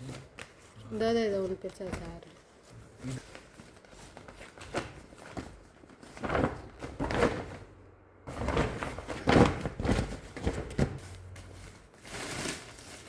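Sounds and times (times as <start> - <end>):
grow bags rustling and knocking: 3.2 - 13.0.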